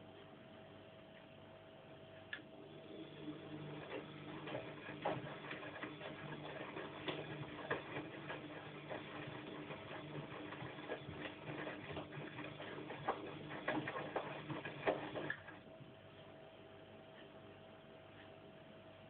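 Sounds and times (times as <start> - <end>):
washing machine motor hum: 0.4 - 19.0.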